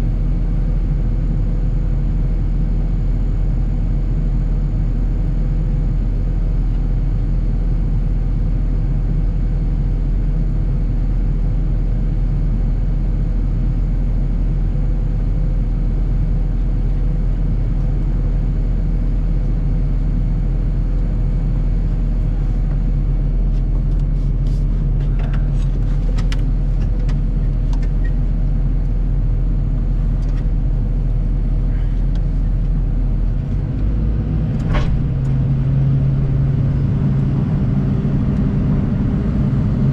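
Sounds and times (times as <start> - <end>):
excavator diesel engine running: 20.8 - 39.9.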